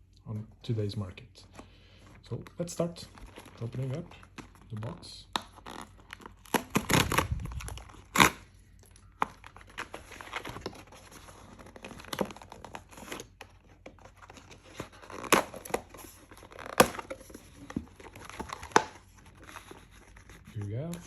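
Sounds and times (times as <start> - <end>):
plastic wrapping and cardboard tearing: 5.4 - 21.0.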